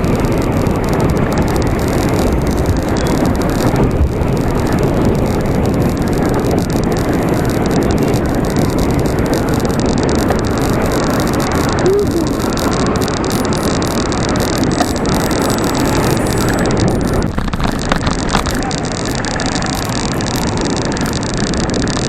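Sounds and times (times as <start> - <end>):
passing traffic: 0.0 - 22.0
wind buffeting microphone: 0.0 - 22.0.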